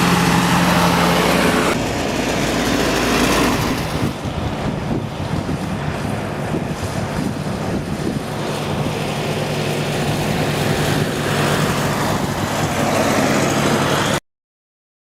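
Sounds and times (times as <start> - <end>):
tractor engines running: 0.0 - 14.2.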